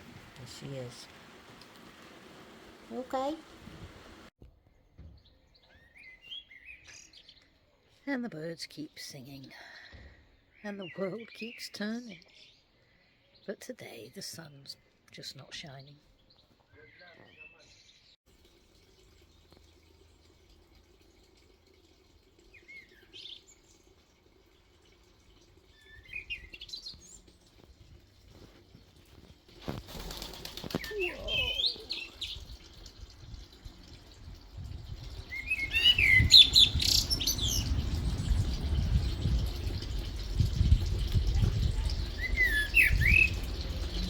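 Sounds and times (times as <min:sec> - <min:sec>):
small birds chirping: 0:04.9 - 0:18.2, 0:22.4 - 0:44.0.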